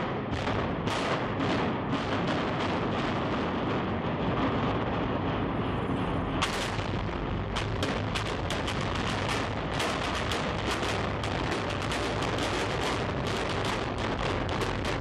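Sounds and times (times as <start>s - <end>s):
continuous rumble: 0.0s - 15.0s
demolition charges cracking: 6.4s - 15.0s.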